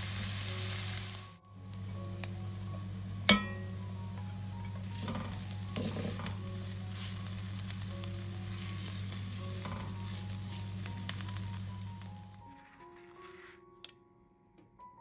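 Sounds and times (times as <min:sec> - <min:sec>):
food sizzling in oil: 0:00.0 - 0:12.4
stirring knocks: 0:03.3 - 0:06.6.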